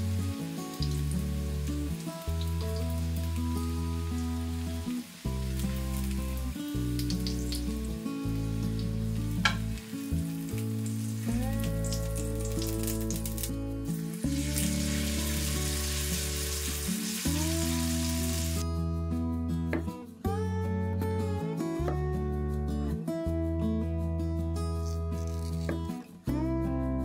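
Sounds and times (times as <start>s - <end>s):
background music sustained notes: 0.0s - 27.0s
fritters sizzling in oil: 0.8s - 13.5s, 14.2s - 18.6s.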